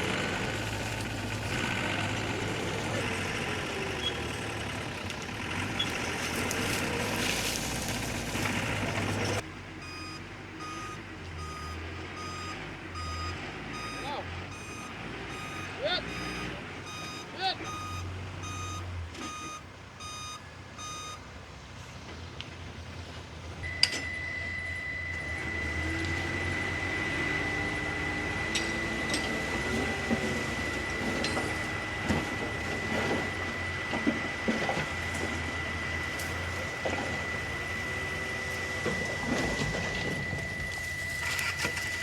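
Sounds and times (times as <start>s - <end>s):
diesel engine rumble: 0.0s - 42.0s
reversing alarm beeping: 9.3s - 21.2s, 23.6s - 42.0s.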